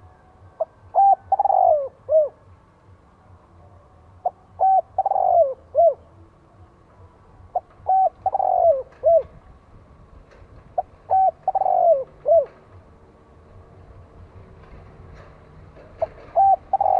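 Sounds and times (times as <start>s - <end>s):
dove cooing: 0.5s - 2.5s, 4.2s - 6.3s, 7.4s - 9.4s, 10.8s - 12.8s, 15.8s - 16.9s.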